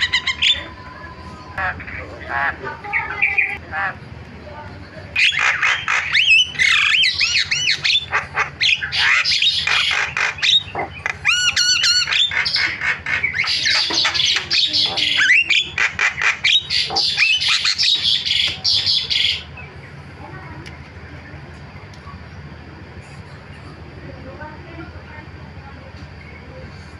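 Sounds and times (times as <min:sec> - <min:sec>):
myna squawking and whistling: 0:00.0 - 0:00.9, 0:05.2 - 0:19.5.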